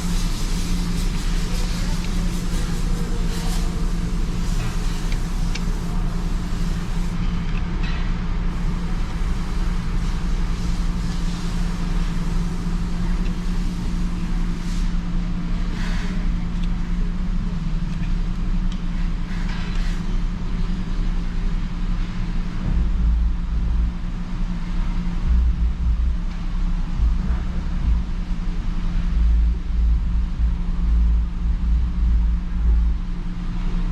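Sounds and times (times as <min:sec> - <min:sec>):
car wash hisses: 0:00.0 - 0:07.2, 0:08.5 - 0:16.9.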